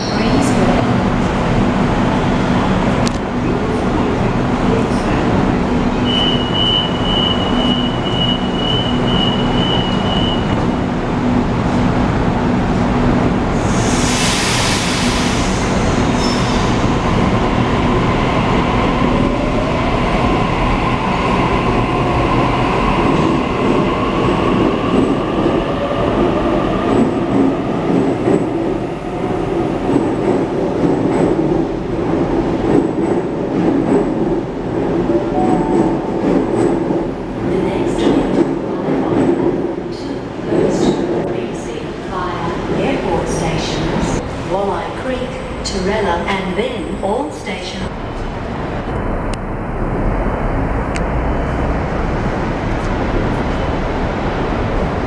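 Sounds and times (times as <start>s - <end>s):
loud hiss of air: 13.6s - 16.8s.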